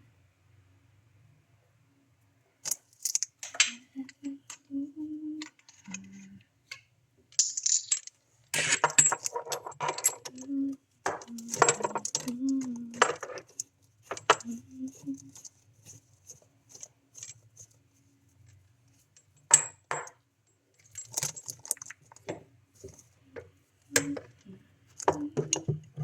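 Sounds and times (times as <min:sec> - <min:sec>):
small metal objects clinking: 0:02.6 - 0:04.6, 0:05.4 - 0:06.4, 0:07.3 - 0:17.8, 0:18.5 - 0:23.0, 0:23.9 - 0:26.0.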